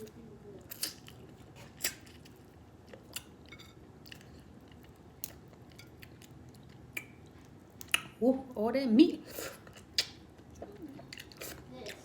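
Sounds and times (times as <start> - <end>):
chewing and picking: 0.0 - 8.1.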